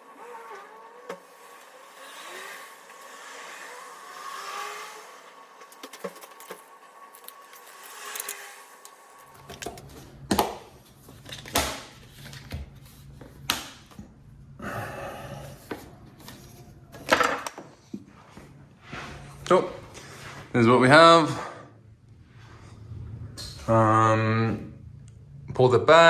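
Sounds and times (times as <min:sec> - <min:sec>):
objects being handled: 0:05.6 - 0:14.2
low steady hum: 0:09.2 - 0:26.0.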